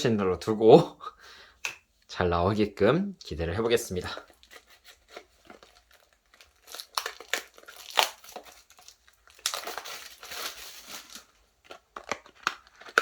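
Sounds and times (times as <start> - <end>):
foil packet crackling and tearing: 3.9 - 13.0.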